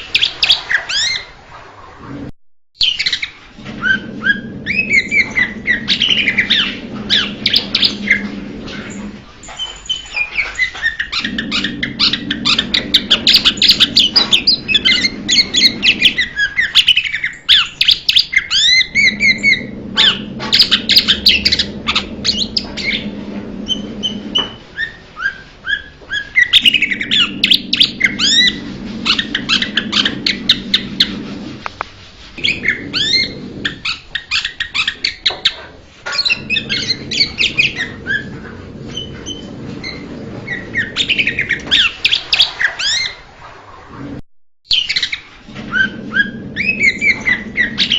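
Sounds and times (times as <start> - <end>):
low hum: 3.6 - 16.4, 18.8 - 24.7, 26.6 - 33.9, 36.0 - 42.6, 45.4 - 47.9.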